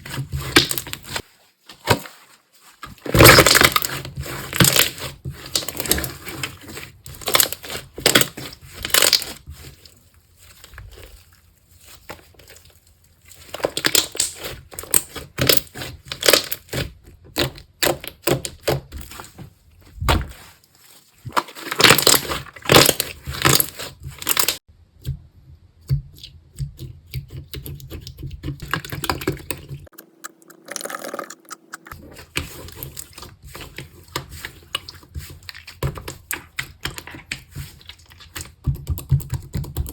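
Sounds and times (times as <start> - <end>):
slime crackling and popping: 13.6 - 16.8.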